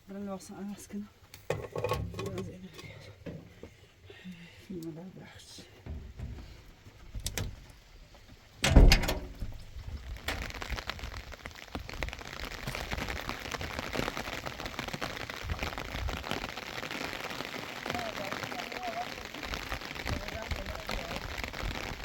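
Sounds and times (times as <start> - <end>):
rain falling on a surface: 2.2 - 22.0
loud thump: 8.6 - 9.6.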